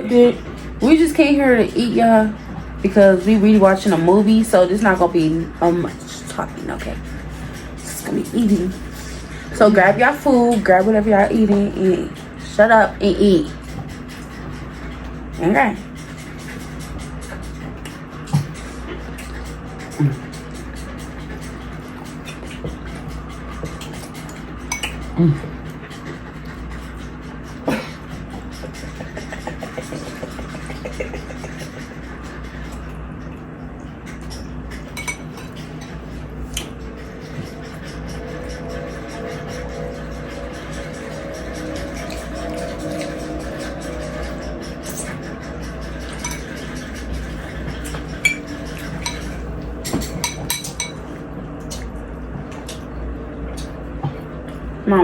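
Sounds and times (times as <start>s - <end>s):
low background hum: 0.0s - 55.0s
fork and plate clinking: 34.9s - 35.9s, 47.9s - 51.0s.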